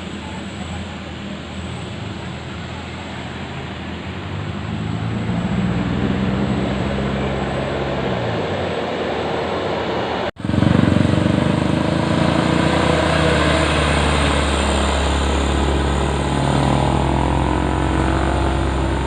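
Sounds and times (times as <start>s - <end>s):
dump truck engine running: 10.3s - 19.0s.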